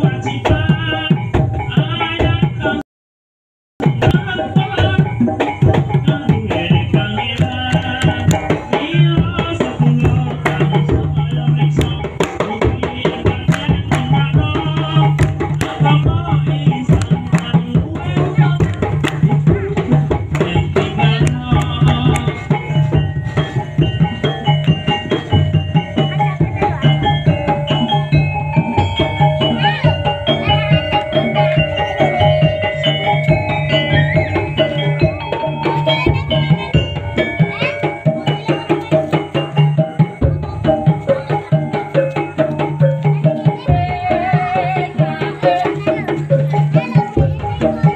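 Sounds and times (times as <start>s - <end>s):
drums and percussion rhythm: 0.0s - 2.8s, 3.8s - 47.9s
sustained melody line: 12.6s - 45.6s.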